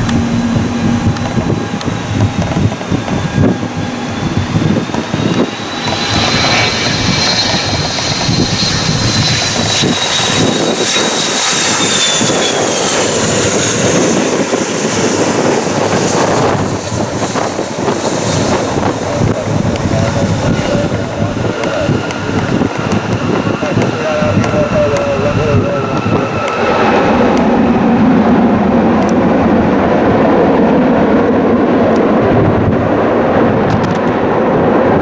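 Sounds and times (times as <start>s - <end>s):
jet engine high whine: 0.0s - 35.0s
jet engine rumble: 0.0s - 35.0s.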